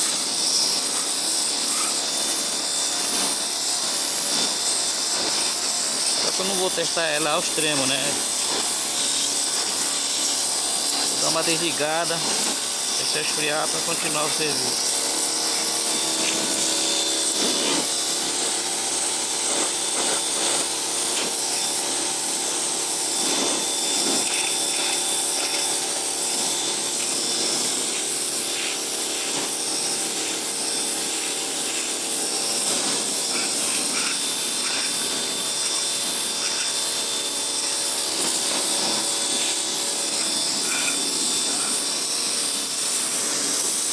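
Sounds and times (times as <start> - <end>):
high-pressure water jet hissing: 0.0 - 43.9
pressure washer motor humming: 0.0 - 43.9.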